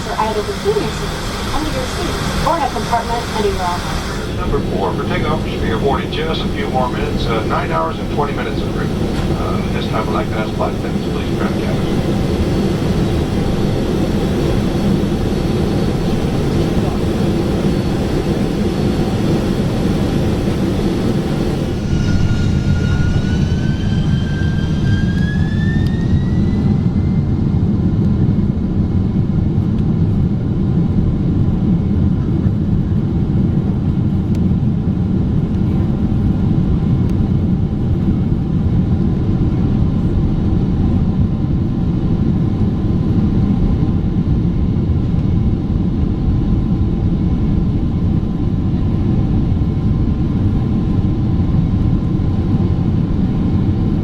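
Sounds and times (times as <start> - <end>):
jet engines whining and roaring: 0.0 - 54.0.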